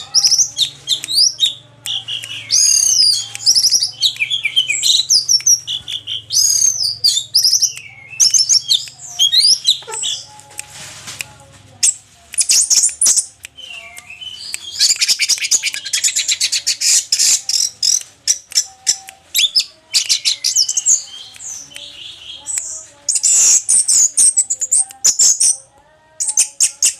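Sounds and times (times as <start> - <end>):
thrush singing: 0.0 - 26.9.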